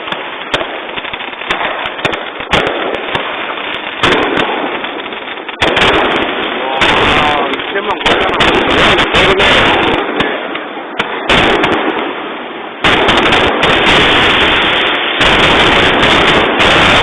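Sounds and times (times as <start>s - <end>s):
fireworks bursts and crackles: 0.0s - 17.0s.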